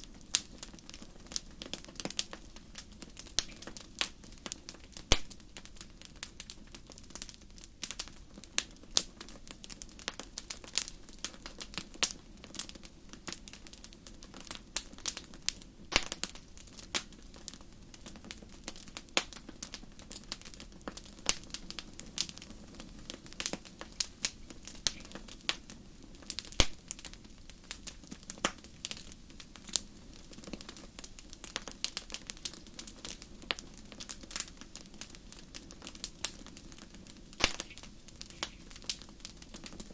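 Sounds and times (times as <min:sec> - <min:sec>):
burning logs popping and snapping: 0:00.0 - 0:39.9
low rumble of flames: 0:00.0 - 0:39.9.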